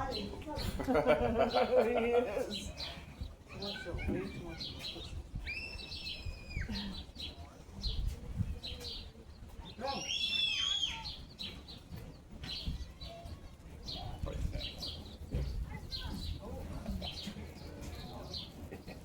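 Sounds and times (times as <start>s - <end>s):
high whistled bird calls: 5.4s - 6.9s, 9.9s - 11.6s.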